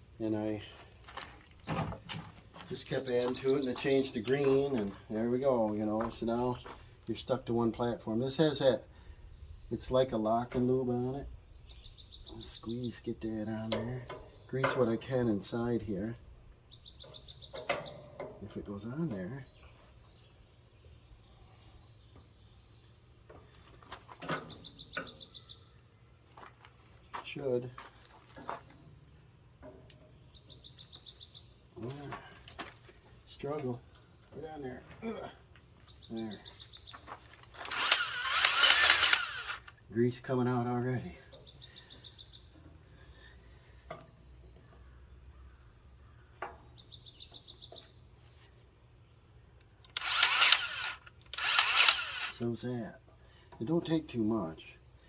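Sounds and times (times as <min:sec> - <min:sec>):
birds chirping: 0:00.0 - 0:55.0
songbird trilling: 0:11.5 - 0:13.1, 0:16.6 - 0:18.2, 0:24.4 - 0:25.9
cordless grease gun whirring: 0:37.6 - 0:39.7, 0:49.8 - 0:52.4.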